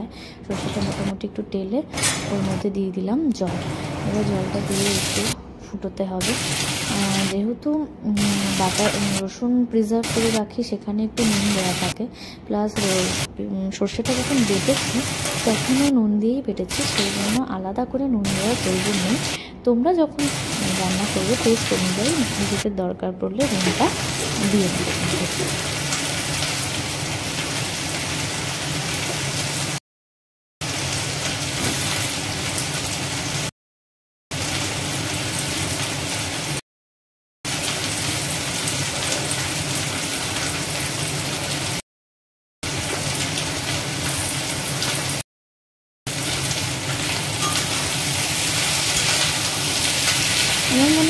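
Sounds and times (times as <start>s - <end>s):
frying sizzle: 3.5s - 5.4s, 6.2s - 7.4s, 8.2s - 9.2s, 10.0s - 10.6s, 11.2s - 12.0s, 12.7s - 13.3s, 14.0s - 16.0s, 16.6s - 17.4s, 18.2s - 19.4s, 20.2s - 22.6s, 23.4s - 29.8s, 30.6s - 33.5s, 34.3s - 36.6s, 37.5s - 41.8s, 42.6s - 45.2s, 46.1s - 51.0s.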